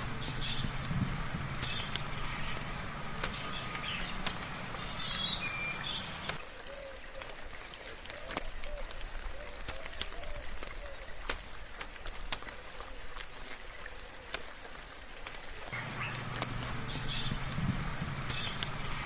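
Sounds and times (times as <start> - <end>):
sharp drips: 0.0 - 19.0
steady rain: 0.0 - 19.0
bird chirps: 1.6 - 6.4, 15.7 - 19.0.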